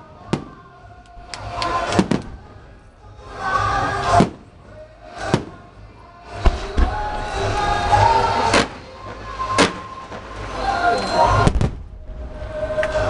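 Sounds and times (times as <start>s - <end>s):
firework shells bursting: 6.4s - 10.5s.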